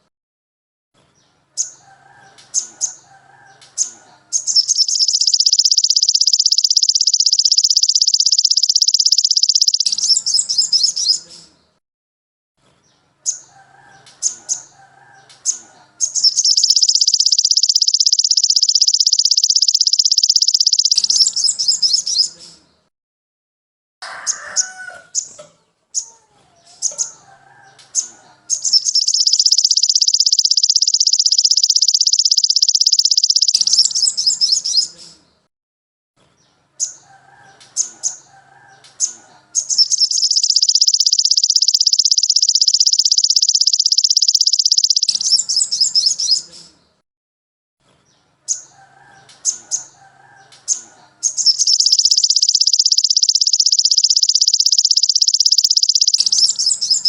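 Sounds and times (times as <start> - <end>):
high rapid bird trill: 1.6 - 11.3, 13.3 - 22.4, 26.8 - 35.0, 36.8 - 46.6, 49.4 - 57.0
sharp bird chirps: 1.6 - 11.6, 13.2 - 22.9, 26.7 - 35.4, 36.8 - 47.0, 48.5 - 57.0.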